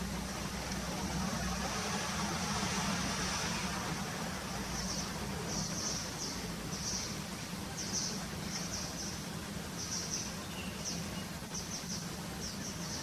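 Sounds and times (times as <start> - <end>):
steady low hum: 0.0 - 13.0
bird chirping: 4.7 - 13.0.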